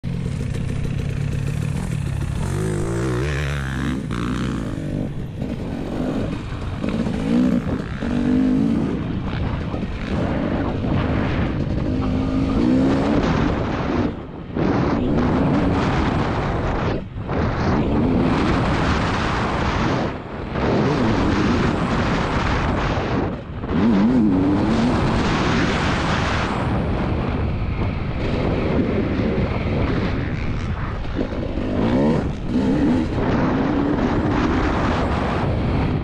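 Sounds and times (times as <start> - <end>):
two-stroke engine revving: 0.1 - 15.6, 28.3 - 35.0.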